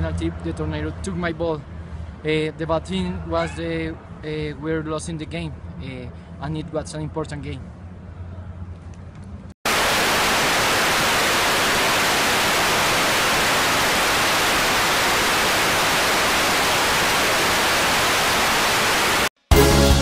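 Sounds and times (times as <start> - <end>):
tv static hiss: 9.7 - 19.3
burst of music: 19.5 - 20.0.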